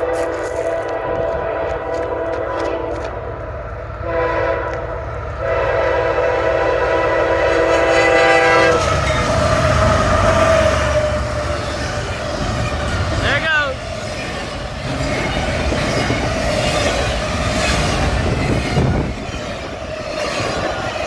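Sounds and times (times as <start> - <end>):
train air horn: 0.0 - 3.2, 4.0 - 9.1
train rumbling past: 0.0 - 21.0.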